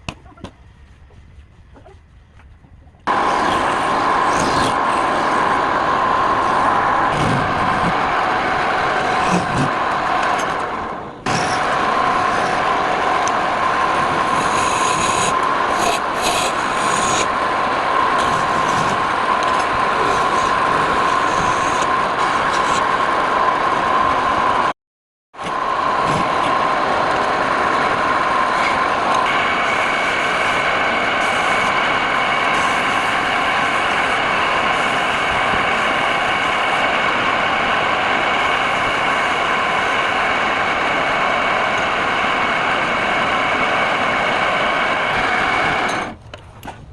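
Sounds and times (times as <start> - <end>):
higher whine: 0.0 - 24.7, 25.4 - 46.2
tool rasping on spinning wood: 3.1 - 10.6, 11.3 - 22.9, 28.4 - 40.4
wood lathe motor whine: 3.1 - 24.6, 25.5 - 46.2.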